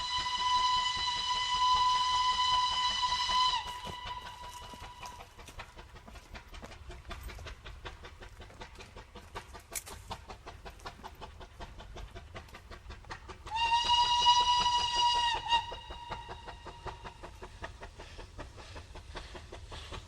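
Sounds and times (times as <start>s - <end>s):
steam locomotive whistle: 0.0s - 5.3s, 13.5s - 17.2s.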